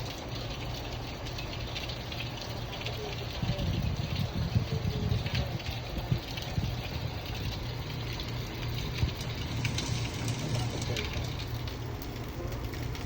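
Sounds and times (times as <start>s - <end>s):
rain falling: 0.0s - 13.0s
low motor hum: 3.4s - 13.0s.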